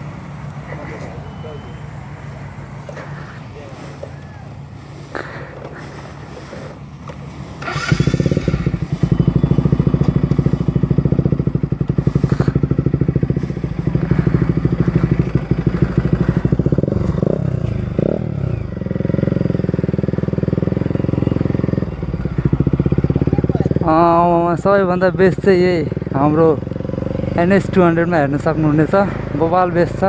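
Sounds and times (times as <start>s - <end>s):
motorcycle engine pulling under load: 2.8s - 23.6s.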